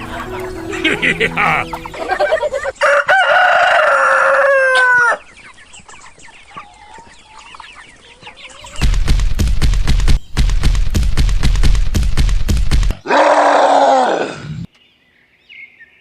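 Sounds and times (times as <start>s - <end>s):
rooster crowing: 2.7s - 5.3s
fast rhythmic pounding: 8.7s - 13.0s.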